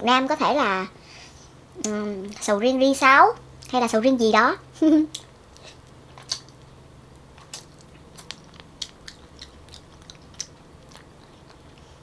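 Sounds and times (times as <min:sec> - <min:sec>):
wet chewing smacks: 0:07.4 - 0:12.0.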